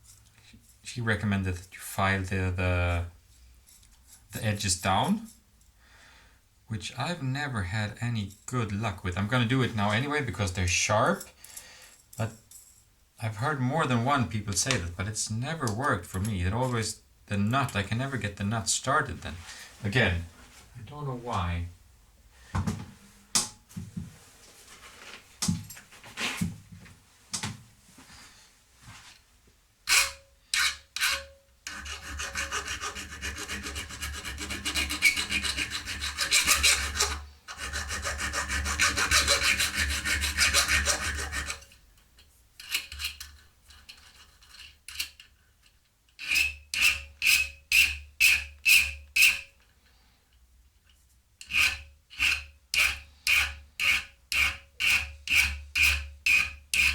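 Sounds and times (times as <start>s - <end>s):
file rasping on steel rod: 29.9s - 41.8s, 46.2s - 49.6s, 51.4s - 56.9s.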